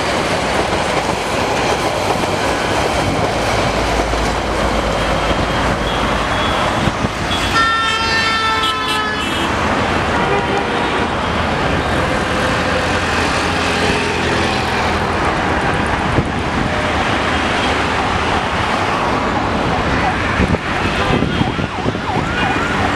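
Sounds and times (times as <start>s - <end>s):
vehicle horn: 5.8s - 11.1s.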